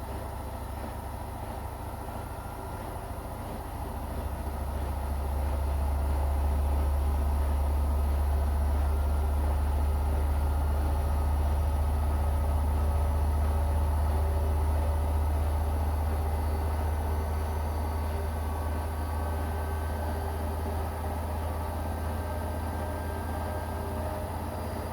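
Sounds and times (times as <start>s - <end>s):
washing machine humming: 9.4s - 24.9s.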